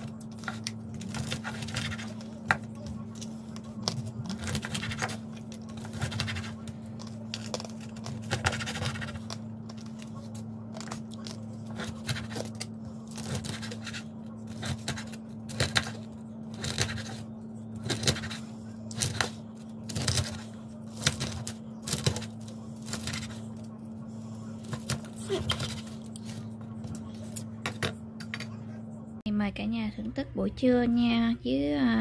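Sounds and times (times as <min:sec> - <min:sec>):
crispy pork crackling being cut: 0:00.0 - 0:23.8
steady low hum: 0:00.0 - 0:32.0.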